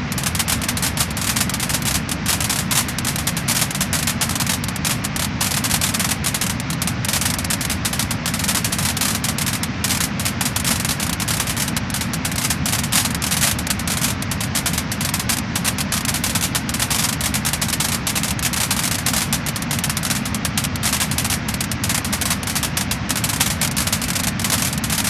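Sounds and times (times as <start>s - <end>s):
low fire rumble: 0.0s - 25.0s
wood fire crackling and popping: 0.0s - 25.0s.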